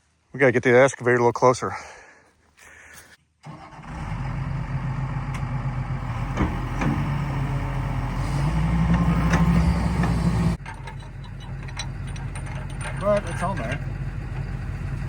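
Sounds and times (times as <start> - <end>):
diesel engine revving: 3.5 - 10.6, 13.7 - 15.0
metal clanks: 6.0 - 14.5.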